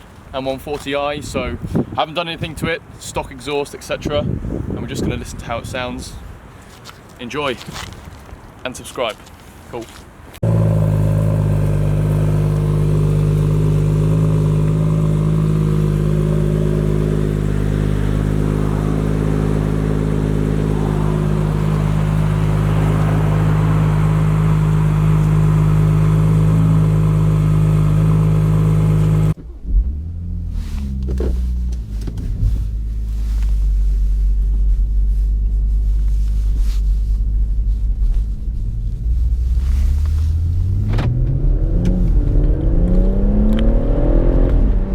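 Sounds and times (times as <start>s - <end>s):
car engine idling: 10.4s - 29.4s
muffled engine rumble revving: 10.4s - 44.9s.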